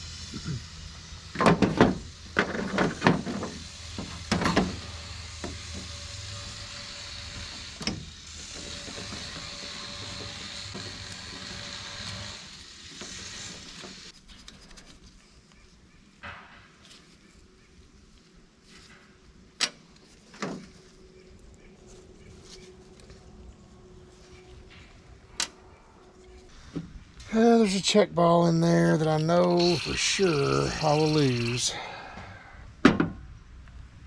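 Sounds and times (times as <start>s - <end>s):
steady hiss: 0.0s - 14.1s, 29.2s - 32.1s.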